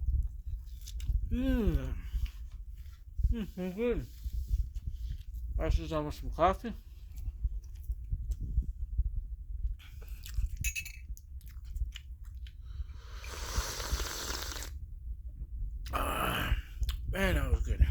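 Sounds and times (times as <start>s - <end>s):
person chewing: 0.2s - 3.8s, 9.9s - 10.6s, 11.4s - 14.7s, 16.8s - 17.1s.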